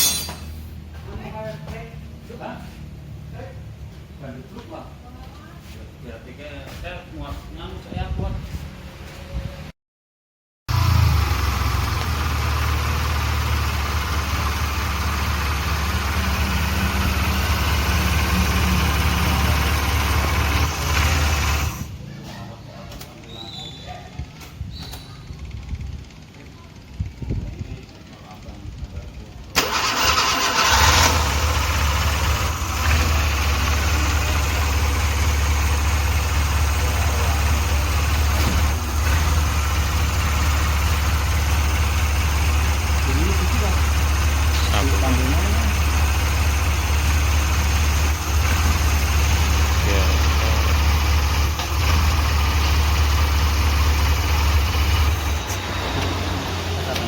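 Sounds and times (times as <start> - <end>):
car engine idling: 10.7 - 21.9, 27.8 - 57.0.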